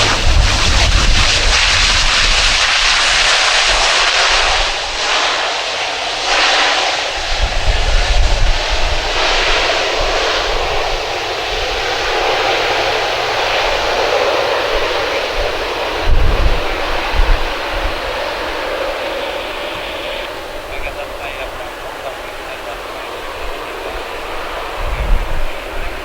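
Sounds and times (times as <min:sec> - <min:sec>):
low rumbling: 0:00.0 - 0:03.4
airplane engines running: 0:00.0 - 0:26.0.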